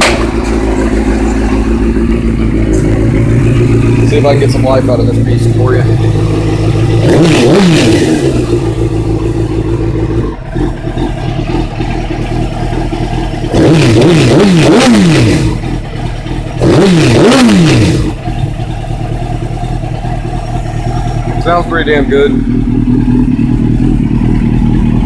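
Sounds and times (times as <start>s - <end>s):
sharp throttle blips: 0.0s - 11.7s
motorcycle engine idling: 0.0s - 25.0s.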